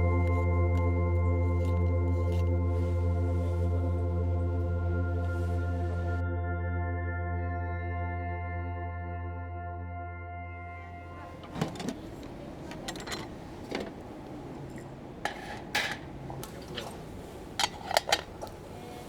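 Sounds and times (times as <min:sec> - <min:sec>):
metal cookware clinking: 0:11.1 - 0:18.8.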